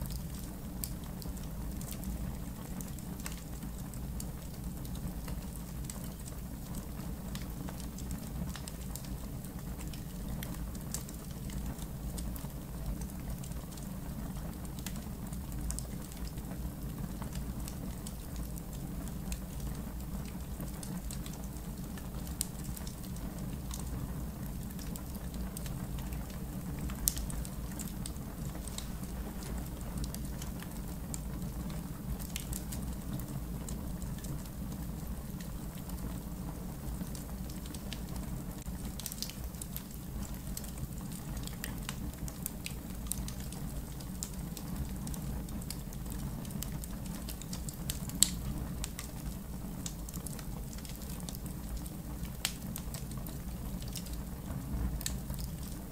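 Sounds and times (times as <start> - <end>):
campfire flames rumbling: 0.0 - 55.9
fire crackling: 0.0 - 55.9
fire popping: 24.6 - 55.9.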